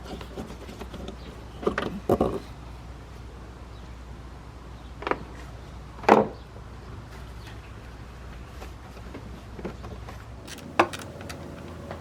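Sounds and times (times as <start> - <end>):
steady low hum: 10.4 - 12.0.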